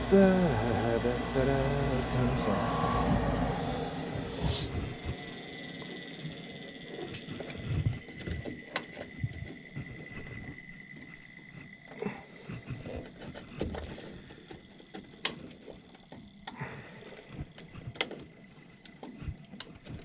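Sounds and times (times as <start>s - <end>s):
high-pitched whine: 0.0s - 12.1s.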